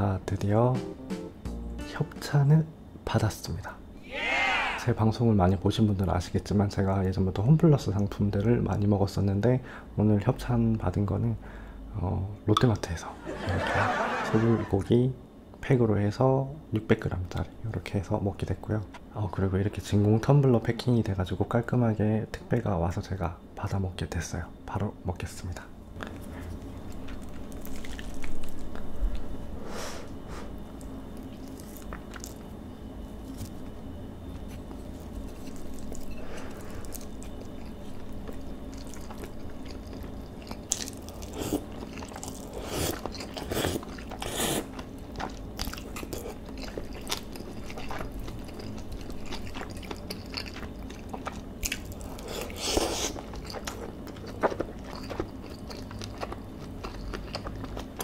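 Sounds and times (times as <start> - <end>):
person chewing food: 26.0 - 29.3, 30.7 - 32.6, 34.4 - 58.0.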